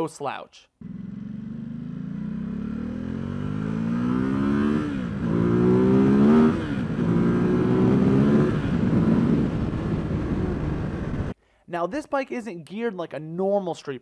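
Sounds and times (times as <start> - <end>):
motorcycle engine accelerating: 0.8 - 11.3.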